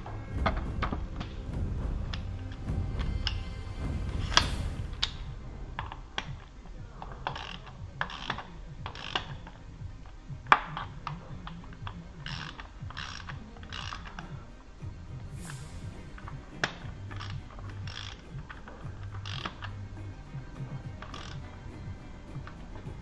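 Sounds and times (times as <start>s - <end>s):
ratchet wrench clicking: 7.0s - 9.6s, 10.4s - 14.3s, 15.4s - 19.8s, 20.6s - 23.0s.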